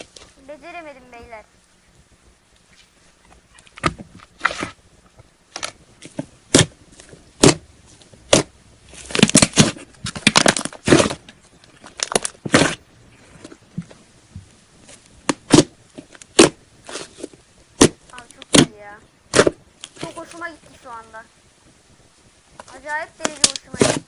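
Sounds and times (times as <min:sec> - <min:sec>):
slime popping and crackling: 0:03.4 - 0:14.0, 0:14.8 - 0:21.3, 0:22.5 - 0:24.0.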